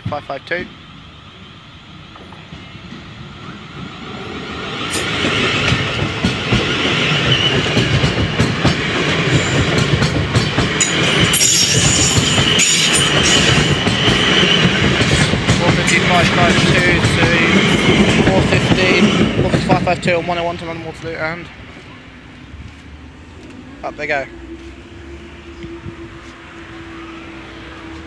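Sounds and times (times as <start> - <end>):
electric train running: 0.6 - 28.0
high whine: 10.8 - 28.0.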